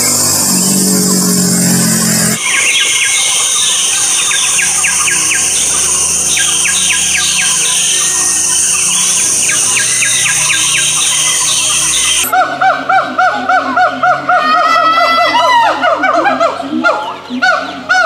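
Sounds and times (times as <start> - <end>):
high-pitched drone: 0.0 - 12.4
bird calling: 0.0 - 18.0.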